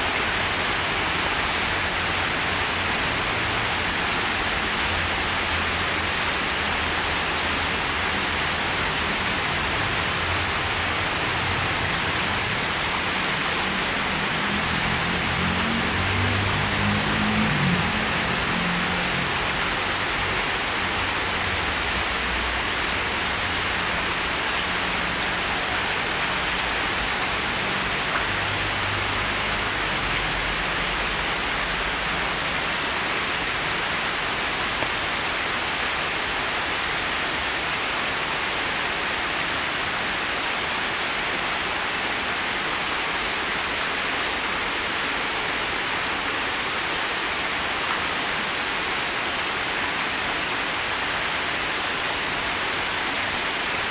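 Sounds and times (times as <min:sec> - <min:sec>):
heavy rain on stone paving: 0:00.0 - 0:53.9.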